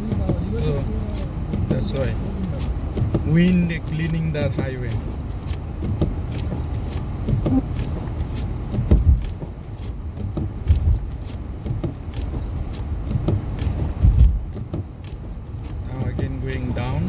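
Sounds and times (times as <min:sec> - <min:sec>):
dull low thumps: 0:00.0 - 0:17.0
road and wind rumble: 0:00.0 - 0:17.0.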